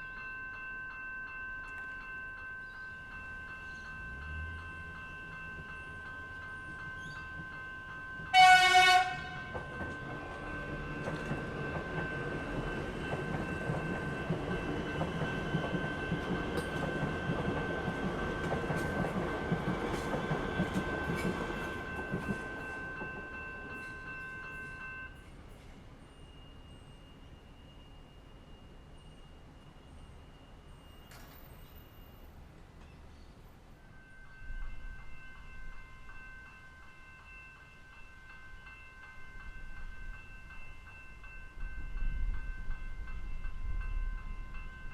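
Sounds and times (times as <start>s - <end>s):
level crossing warning bells: 0.0s - 32.3s
train wheels clicking over rails: 8.2s - 23.8s
train horn blast: 8.3s - 9.6s.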